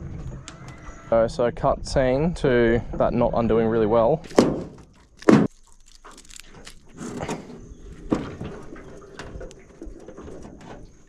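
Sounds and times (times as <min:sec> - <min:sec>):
thump: 0:04.3 - 0:05.5
knocks and rattles of crab pot: 0:04.3 - 0:05.6, 0:06.2 - 0:11.0.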